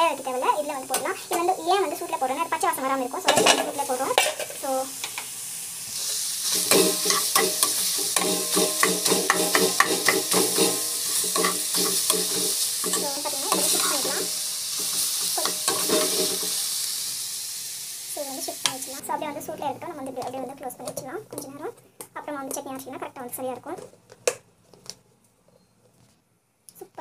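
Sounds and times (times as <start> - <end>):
vegetables sizzling in oil: 0.0 - 21.5
spatula scraping against pan: 6.0 - 16.9.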